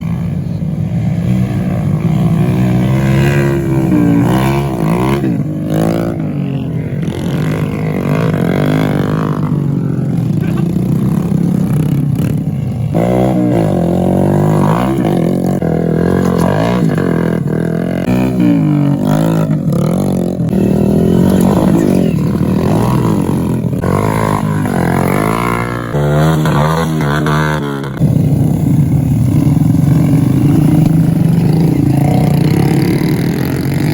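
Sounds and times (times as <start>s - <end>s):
motorcycle engines revving: 0.0s - 33.9s.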